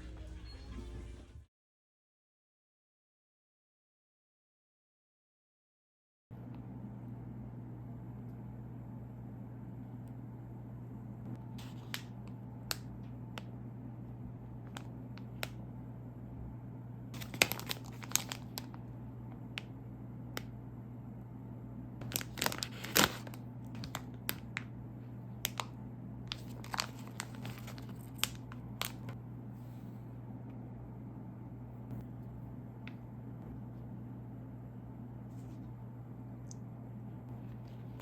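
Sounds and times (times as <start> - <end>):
steady low hum: 6.3 - 38.0
plastic bag crinkling and tearing: 17.2 - 18.8, 22.0 - 24.7, 26.3 - 29.1.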